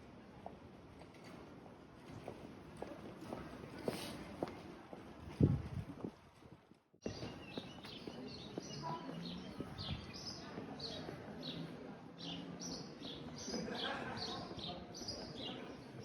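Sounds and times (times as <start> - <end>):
small birds chirping: 7.0 - 13.6.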